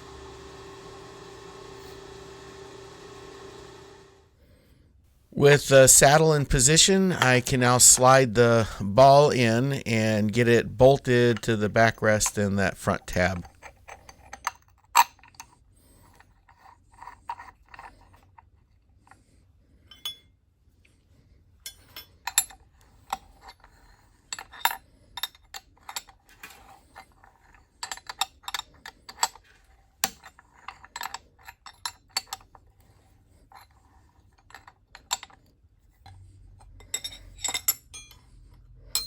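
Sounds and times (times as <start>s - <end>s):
faint machine-shop hum: 0.0s - 4.4s
metallic clinks and taps: 19.9s - 20.3s, 21.6s - 23.6s, 36.0s - 38.3s.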